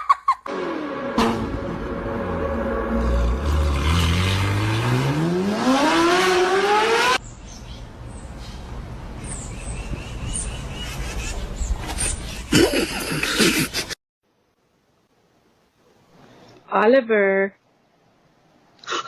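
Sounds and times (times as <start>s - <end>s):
motor revving up: 0.5s - 7.2s.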